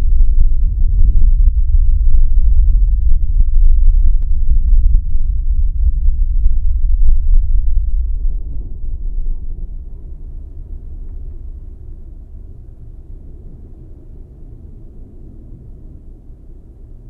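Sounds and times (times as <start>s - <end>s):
thunder rumbling: 0.0s - 12.5s.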